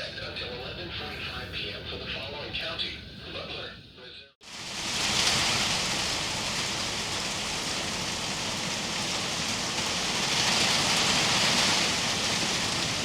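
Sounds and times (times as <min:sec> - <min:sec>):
heavy rain hissing: 0:04.4 - 0:13.0.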